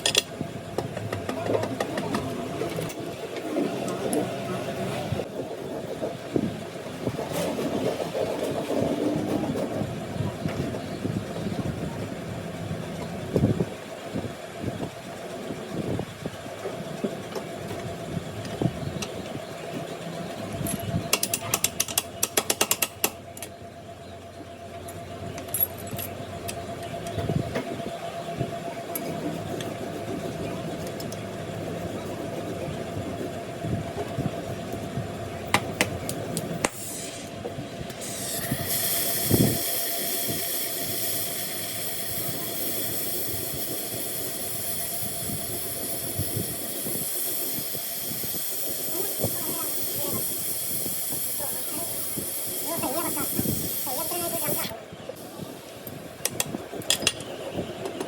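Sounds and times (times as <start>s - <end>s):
machine humming: 23.2s - 58.0s
steady hiss: 38.1s - 54.7s.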